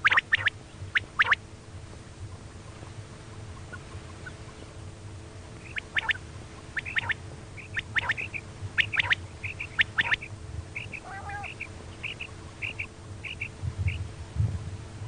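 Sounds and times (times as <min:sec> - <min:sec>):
quail calling: 0:00.0 - 0:01.4, 0:02.3 - 0:04.8, 0:05.6 - 0:14.0
low steady hum: 0:00.0 - 0:15.0.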